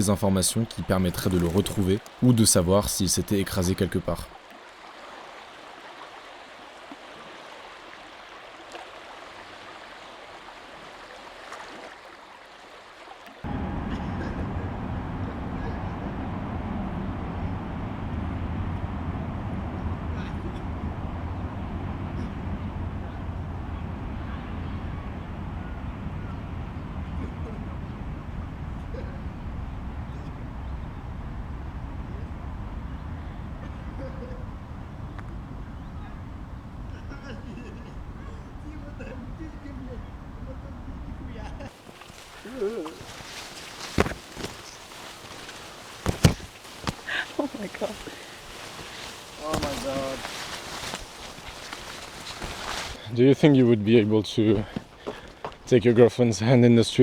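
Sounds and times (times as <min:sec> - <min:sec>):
vehicle engine rumble: 0:00.0 - 0:04.1, 0:13.5 - 0:53.1
steady rushing noise: 0:13.5 - 0:38.8, 0:41.7 - 0:53.0
faint clicks: 0:35.1 - 0:35.4.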